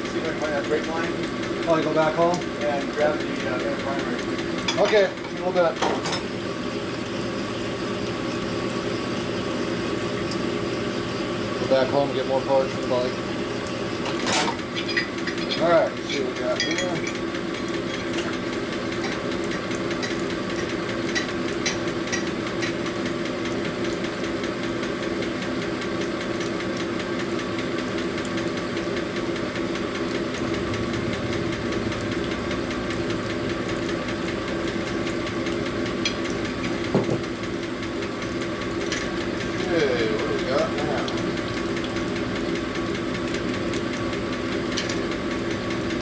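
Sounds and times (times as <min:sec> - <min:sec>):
honing machine humming: 0:27.6 - 0:41.6.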